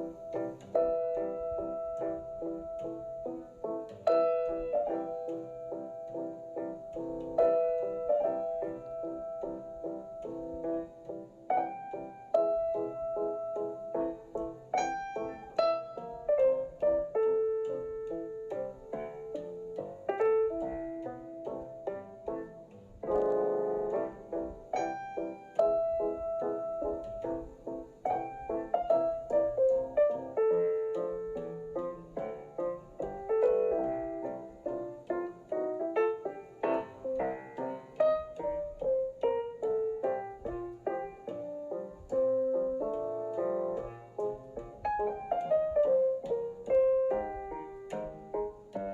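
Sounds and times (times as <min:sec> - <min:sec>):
piano music: 0:00.0 - 0:48.9.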